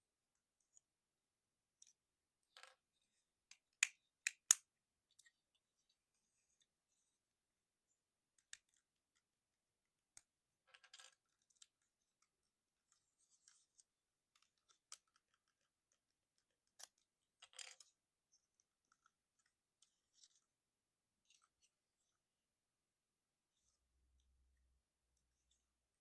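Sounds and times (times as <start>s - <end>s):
plastic toy parts clicking: 3.5s - 4.6s.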